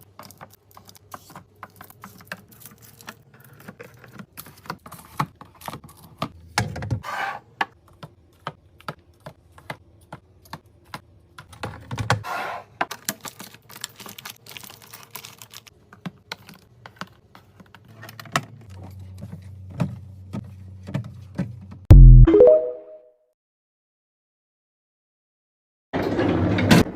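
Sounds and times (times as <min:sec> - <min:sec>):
packaging rustling: 0:12.9 - 0:15.7.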